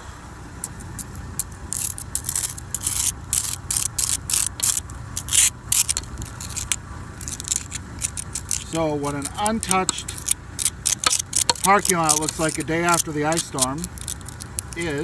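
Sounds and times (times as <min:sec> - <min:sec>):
knife blade scraping ice: 0:00.6 - 0:15.0.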